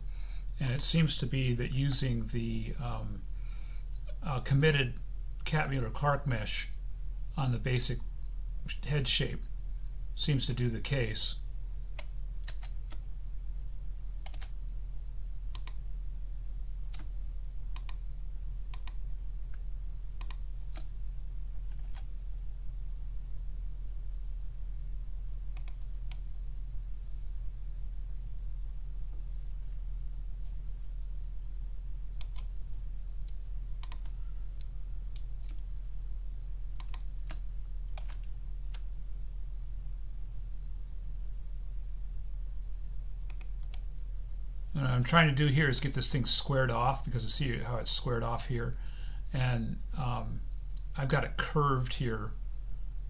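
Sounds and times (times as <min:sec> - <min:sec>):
faint high whine: 0:00.0 - 0:53.0
low electrical hum: 0:00.0 - 0:53.0
keyboard and mouse clicks: 0:12.0 - 0:13.0, 0:14.2 - 0:14.6, 0:15.5 - 0:15.8, 0:16.9 - 0:18.0, 0:18.7 - 0:19.0, 0:20.2 - 0:20.9, 0:21.7 - 0:22.1, 0:25.5 - 0:26.2, 0:32.2 - 0:32.5, 0:33.2 - 0:35.9, 0:36.8 - 0:38.8, 0:43.3 - 0:43.8.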